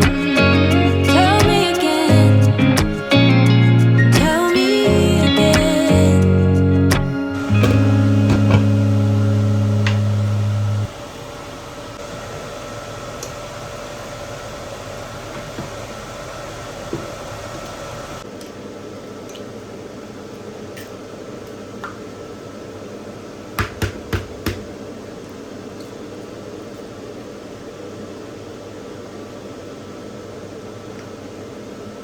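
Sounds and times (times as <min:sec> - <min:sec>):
fan-like background noise: 0:07.4 - 0:32.0
loud low hum: 0:07.5 - 0:18.2.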